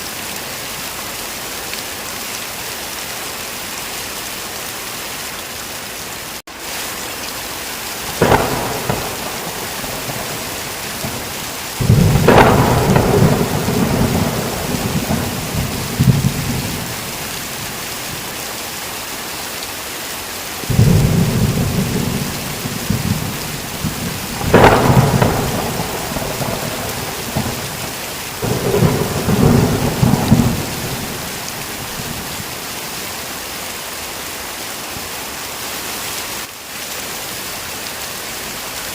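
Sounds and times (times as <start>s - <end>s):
heavy rain hissing: 0.0s - 38.9s
thunder claps and rumbles: 8.1s - 17.9s, 20.6s - 32.6s.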